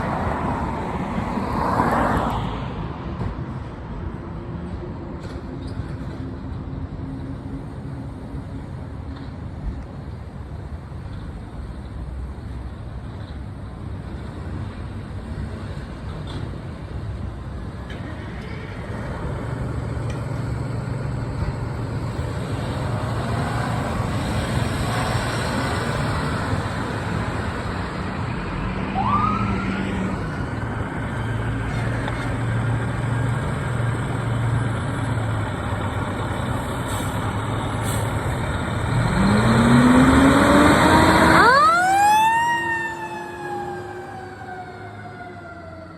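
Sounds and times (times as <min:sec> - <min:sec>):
fire engine running: 0:03.5 - 0:45.9
rising siren tone: 0:28.8 - 0:30.2, 0:39.0 - 0:45.9.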